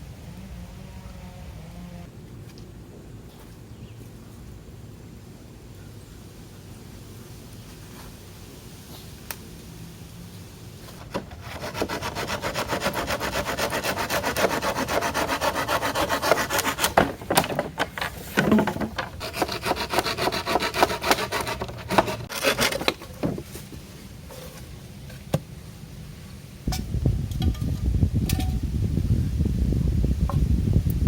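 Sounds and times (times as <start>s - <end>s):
hand saw cutting wood: 11.0s - 23.2s.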